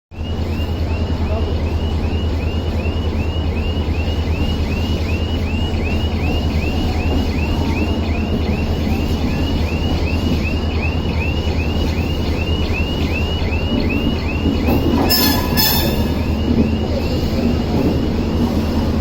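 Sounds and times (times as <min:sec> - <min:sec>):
train rumble: 0:00.1 - 0:19.0
train horn blast: 0:15.0 - 0:16.4.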